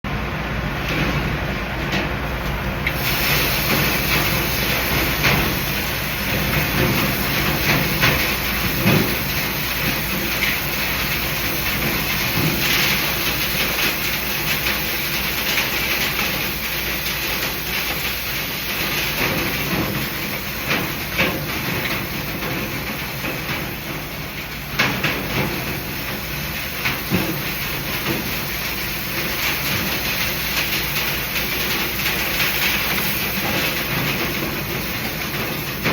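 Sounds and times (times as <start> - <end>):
knocks and rattles in ductwork: 0.1 - 35.9
rushing hiss of moving air: 2.9 - 21.3.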